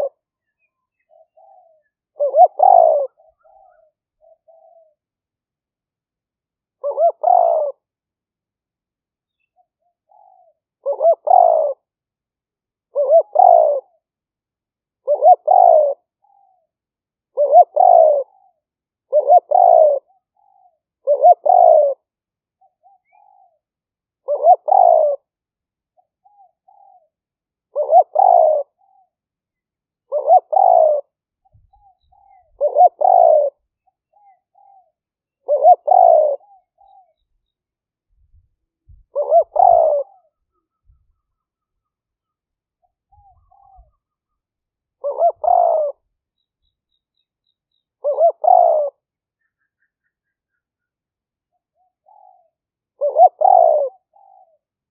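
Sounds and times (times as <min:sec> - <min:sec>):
dove cooing: 0:00.0 - 0:05.0, 0:06.8 - 0:07.9, 0:09.6 - 0:11.9, 0:12.9 - 0:14.0, 0:15.0 - 0:16.7, 0:17.3 - 0:25.4, 0:26.0 - 0:29.2, 0:30.1 - 0:37.4, 0:38.9 - 0:42.0, 0:42.8 - 0:44.4, 0:45.0 - 0:46.2, 0:48.0 - 0:50.6, 0:51.7 - 0:54.6
soft little bird notes: 0:00.0 - 0:05.2, 0:25.8 - 0:54.9.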